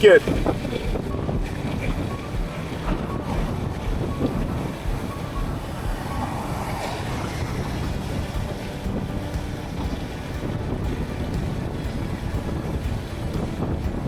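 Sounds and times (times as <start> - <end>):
road noise: 0.0 - 14.0
wind rushing over microphone: 0.0 - 14.0.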